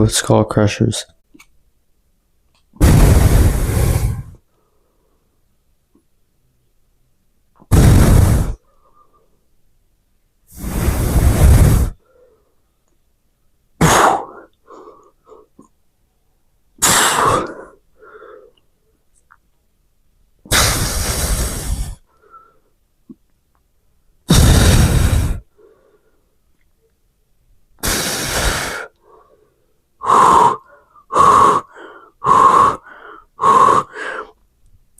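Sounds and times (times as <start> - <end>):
breath buffeting microphone: 2.8 - 4.4, 7.6 - 9.4, 10.5 - 12.6, 20.5 - 22.6, 24.3 - 26.2, 27.8 - 34.4
man exhaling hard: 2.8 - 4.4, 7.7 - 9.2, 10.5 - 12.4, 16.8 - 18.6, 20.5 - 22.4, 24.3 - 26.0, 27.8 - 29.4, 30.0 - 34.4.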